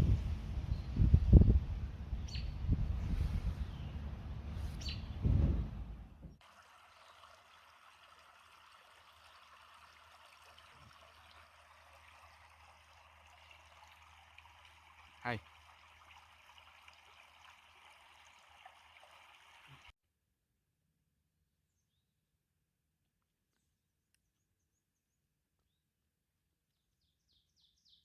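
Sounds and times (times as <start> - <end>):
low rumbling outdoor noise: 0.0 - 7.3
short falling bird chirps: 2.2 - 5.3.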